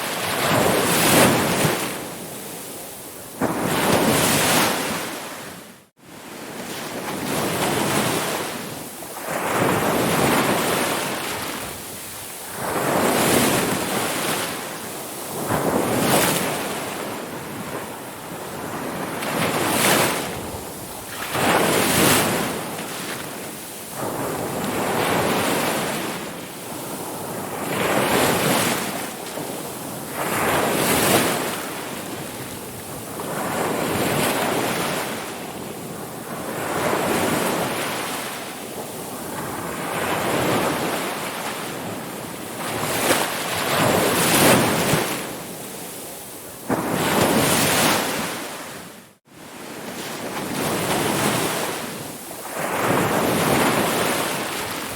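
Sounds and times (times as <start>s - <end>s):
ocean waves breaking: 42.5s - 54.9s.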